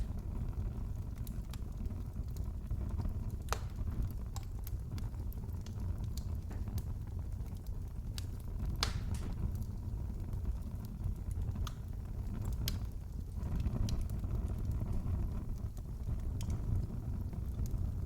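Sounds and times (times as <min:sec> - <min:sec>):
fireplace fire crackling: 0:00.0 - 0:18.0.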